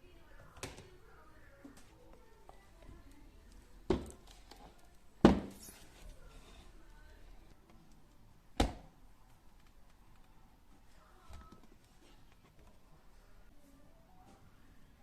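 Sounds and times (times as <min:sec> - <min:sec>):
household items being handled: 0:00.3 - 0:08.2.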